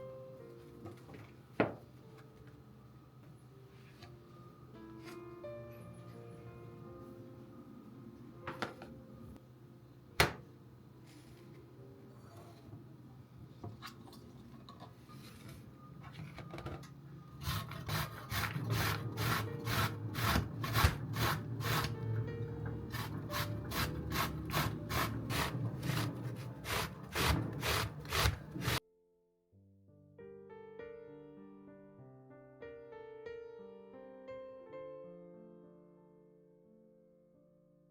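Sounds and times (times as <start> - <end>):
vegetables rasping on grater: 17.4 - 22.0, 22.9 - 28.8.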